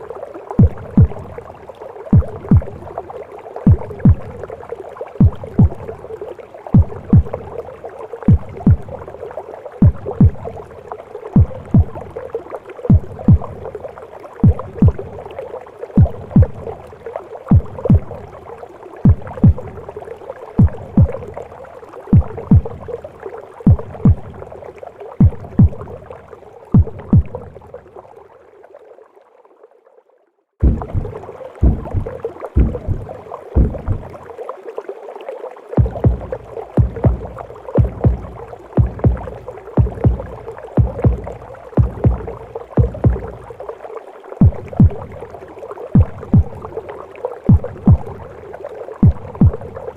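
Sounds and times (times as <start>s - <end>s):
heartbeat thumps: 0.6s - 1.4s, 2.1s - 2.8s, 3.7s - 4.5s, 5.2s - 6.0s, 6.8s - 7.6s, 8.3s - 9.0s, 9.8s - 10.7s, 11.4s - 12.2s, 12.9s - 13.7s, 14.4s - 15.2s, 16.0s - 16.8s, 17.5s - 18.3s, 19.0s - 19.9s, 20.6s - 21.4s, 22.1s - 22.9s, 23.7s - 24.5s, 25.2s - 26.0s, 26.8s - 27.6s, 30.6s - 34.2s, 35.8s - 43.7s, 44.4s - 45.3s, 46.0s - 46.8s, 47.5s - 48.3s, 49.0s - 49.9s.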